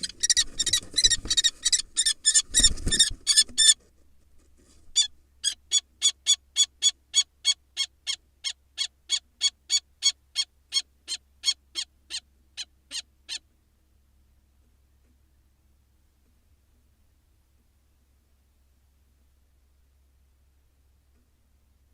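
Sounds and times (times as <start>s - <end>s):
kestrel alarm calls: 0.0s - 3.8s.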